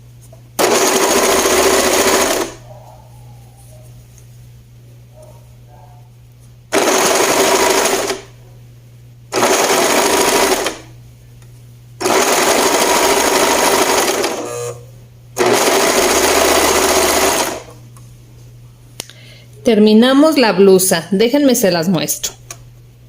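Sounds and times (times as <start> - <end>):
sewing machine stitching: 0.6 - 2.6, 6.7 - 8.3, 9.3 - 10.9, 12.0 - 14.8, 15.4 - 17.7.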